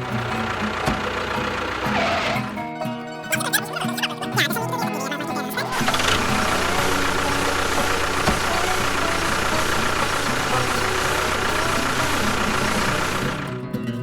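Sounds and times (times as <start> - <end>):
motor running with faint whine: 0.0 - 2.6, 5.7 - 13.8.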